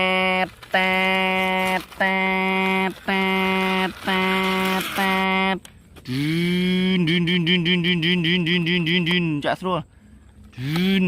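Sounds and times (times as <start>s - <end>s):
horn blasts: 0.0s - 5.6s.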